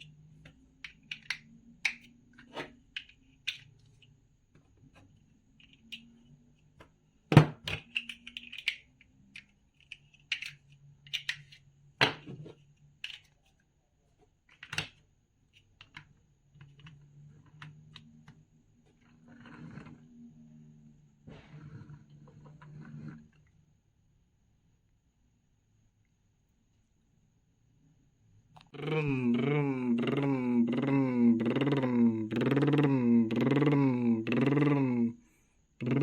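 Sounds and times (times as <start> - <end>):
plastic toy bricks clicking: 0.4 - 4.1, 7.5 - 12.2, 13.0 - 13.4, 14.5 - 15.0.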